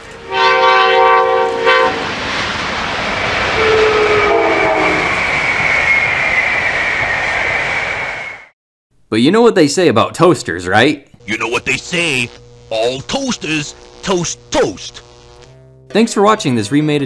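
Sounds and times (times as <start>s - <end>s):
train horn chord: 0.0s - 2.1s, 3.6s - 5.0s
high whine: 0.0s - 8.5s, 11.2s - 15.9s
faint short train horn: 0.2s - 2.0s, 3.6s - 5.1s
train wheels rumbling on rails: 1.4s - 8.4s.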